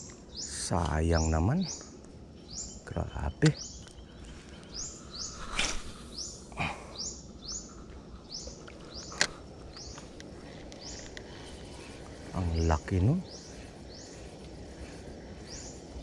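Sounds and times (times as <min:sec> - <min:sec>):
bird high chirp: 0:00.0 - 0:10.1, 0:15.4 - 0:15.8
faint outdoor background noise: 0:00.0 - 0:16.0.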